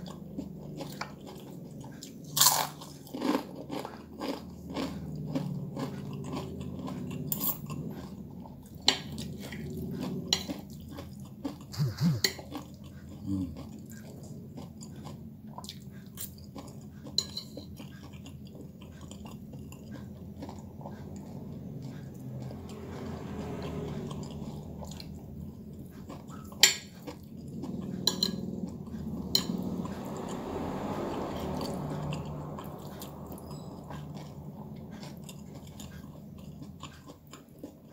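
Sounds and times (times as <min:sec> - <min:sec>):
person chewing: 0:00.0 - 0:37.9.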